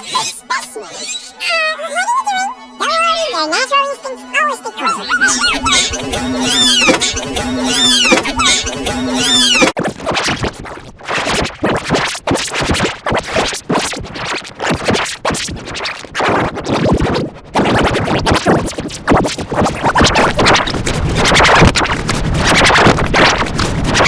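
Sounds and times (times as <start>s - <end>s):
stuttering distorted audio effect: 4.9s - 10.5s.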